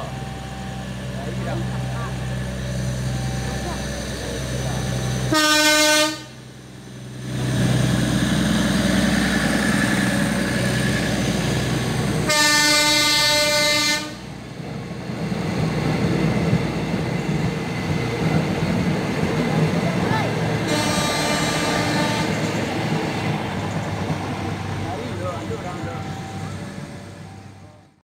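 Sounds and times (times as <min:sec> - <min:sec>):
train engine rumble: 0:00.0 - 0:28.0
train horn blasts: 0:05.3 - 0:06.4, 0:12.2 - 0:14.3, 0:20.6 - 0:22.7.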